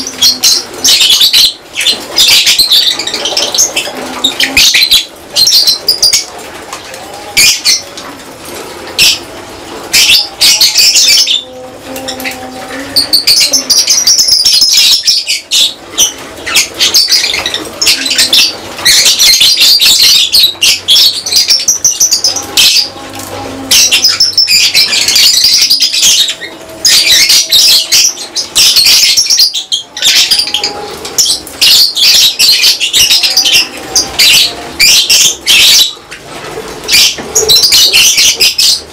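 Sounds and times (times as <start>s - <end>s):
lovebirds chattering: 0.0s - 38.9s.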